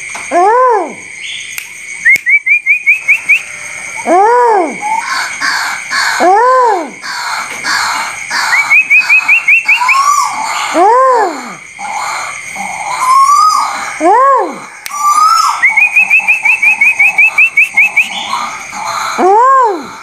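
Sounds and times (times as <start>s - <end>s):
high insect trill: 0.0s - 20.0s
bird arching calls: 7.0s - 10.8s, 11.8s - 14.0s, 14.7s - 19.2s.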